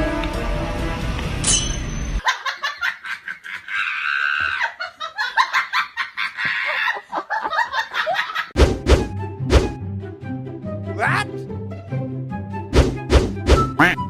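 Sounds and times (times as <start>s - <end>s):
music: 0.0s - 2.2s, 8.6s - 14.0s
person laughing hard: 2.2s - 8.5s.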